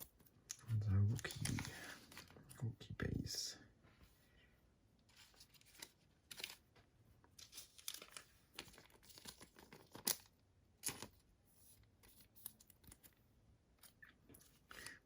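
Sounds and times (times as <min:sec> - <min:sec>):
card pack crinkling rustles: 0:00.8 - 0:02.5, 0:05.1 - 0:06.7, 0:07.4 - 0:11.2.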